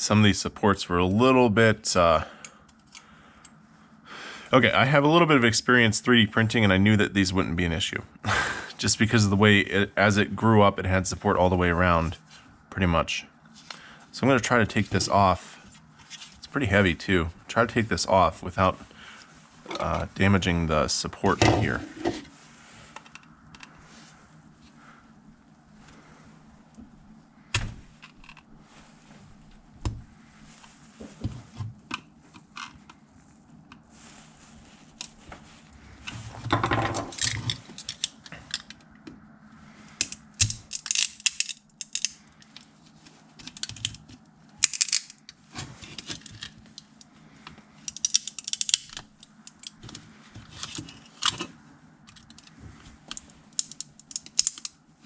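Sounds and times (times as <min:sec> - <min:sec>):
plastic snapping and cracking: 0:40.0 - 0:42.2, 0:44.6 - 0:45.2, 0:47.9 - 0:49.8, 0:53.1 - 0:54.7.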